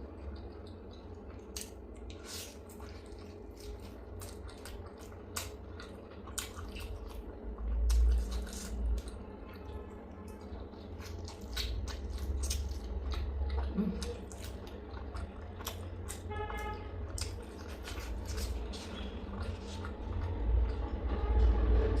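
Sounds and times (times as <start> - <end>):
wet chewing and lip-smacking: 0.0 - 21.1
low rumble: 6.3 - 22.0.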